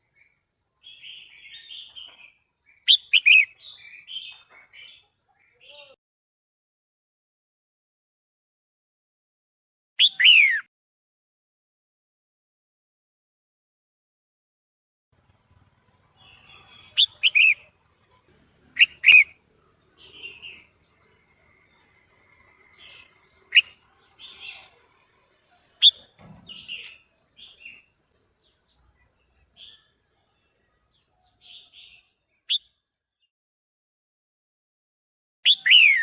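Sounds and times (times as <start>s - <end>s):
bird calling sharp notes: 2.9s - 4.2s, 16.1s - 17.8s, 18.8s - 20.7s, 22.8s - 24.7s
bird chattering softly: 2.9s - 6.0s, 16.1s - 19.4s, 22.4s - 24.8s.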